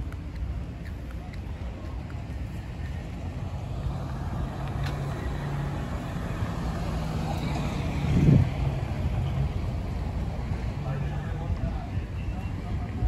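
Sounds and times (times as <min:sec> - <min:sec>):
engine rumble: 0:00.0 - 0:13.0.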